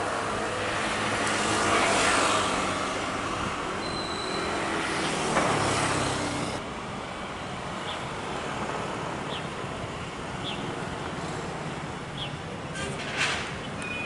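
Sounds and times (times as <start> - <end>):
road traffic passing: 0.0 - 14.0
vehicle passing by: 0.1 - 3.7.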